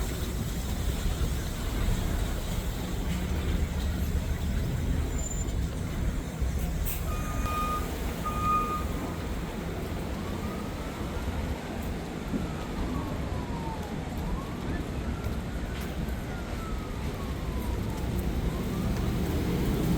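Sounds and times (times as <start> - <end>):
heavy vehicle traffic rumble: 0.0 - 19.9
short beeps: 7.0 - 8.9
siren rising in pitch: 16.3 - 19.9.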